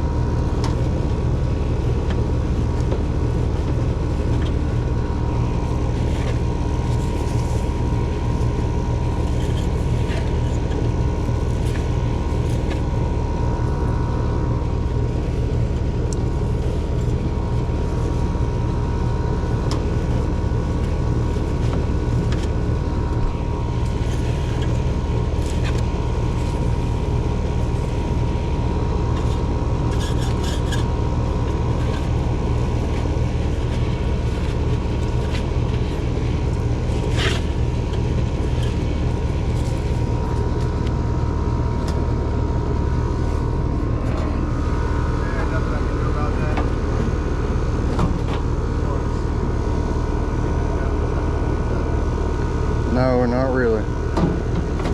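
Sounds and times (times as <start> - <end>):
air conditioner unit humming: 0.0 - 54.9.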